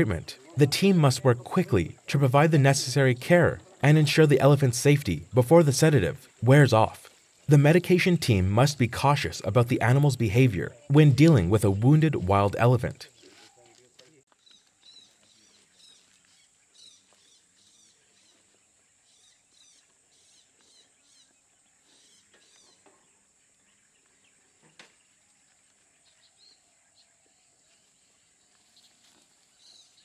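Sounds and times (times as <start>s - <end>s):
bird chirps: 14.3s - 25.3s.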